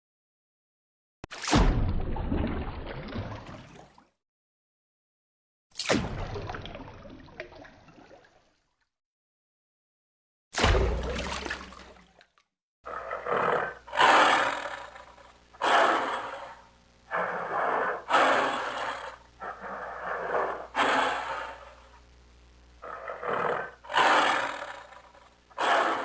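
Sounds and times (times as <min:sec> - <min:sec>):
large animal calling loudly: 0:12.9 - 0:22.0, 0:22.8 - 0:26.0.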